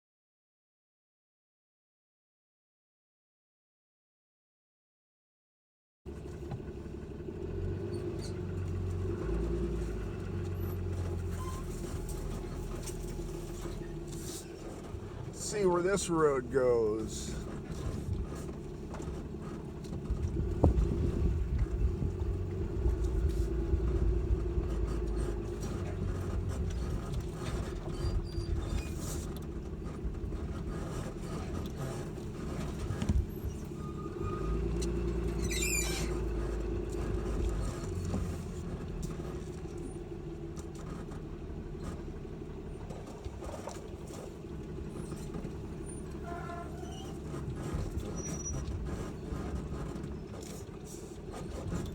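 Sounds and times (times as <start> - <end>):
truck engine and road rumble: 6.1 - 51.9
knocks and rattles over bumps: 7.7 - 51.9
brief high squeak: 11.3 - 11.8, 35.4 - 36.3, 45.9 - 47.2, 48.1 - 48.7.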